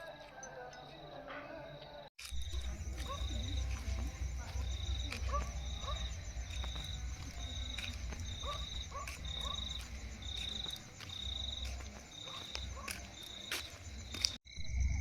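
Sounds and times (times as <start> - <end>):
crickets chirping: 0.0 - 15.0
low rumble: 2.3 - 11.9
frog calls: 2.4 - 14.4.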